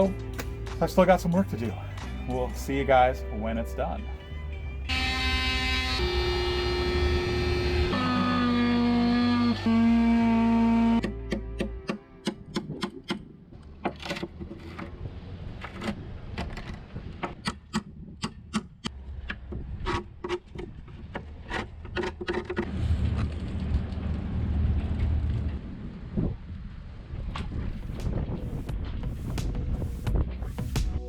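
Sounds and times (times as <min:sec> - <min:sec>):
steady low rumble: 0:22.7 - 0:31.0.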